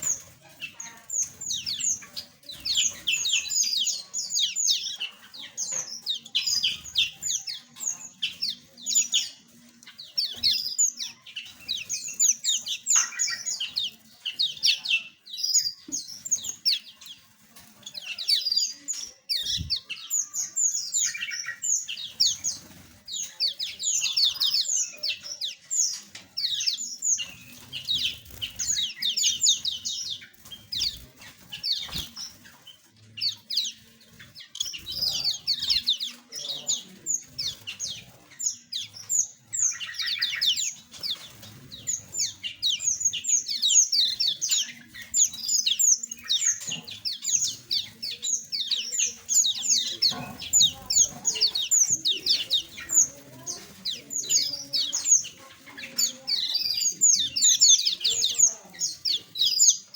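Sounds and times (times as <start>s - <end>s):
flock of small birds chirping: 0.0s - 59.9s.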